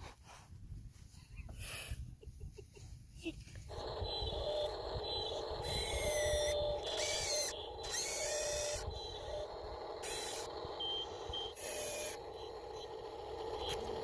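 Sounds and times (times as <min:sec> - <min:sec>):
steady hum: 0:03.6 - 0:14.0
small electric motors whining: 0:03.7 - 0:14.0.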